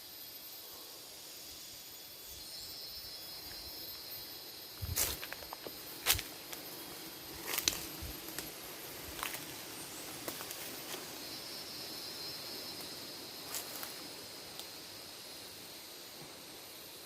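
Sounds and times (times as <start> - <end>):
high insect buzz: 0.0 - 17.0
crackles in undergrowth: 3.5 - 15.1.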